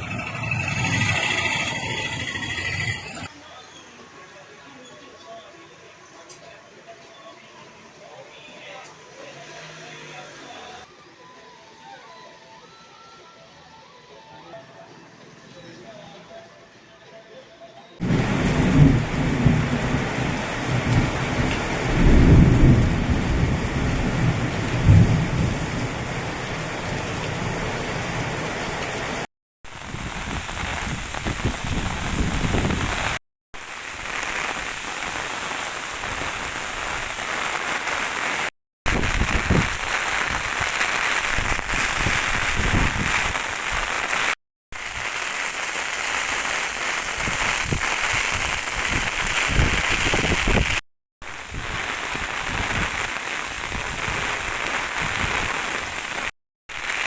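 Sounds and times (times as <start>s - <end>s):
heavy rain pouring: 18.0s - 57.0s.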